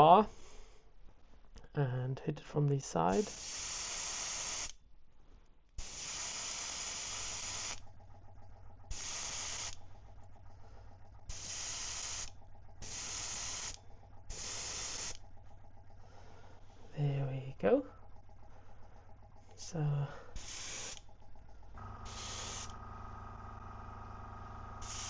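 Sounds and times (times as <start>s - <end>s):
airbrush spraying hiss: 3.1s - 4.7s, 5.8s - 7.8s, 8.9s - 9.8s, 11.3s - 15.2s, 20.4s - 21.0s, 22.0s - 22.8s, 24.8s - 25.0s.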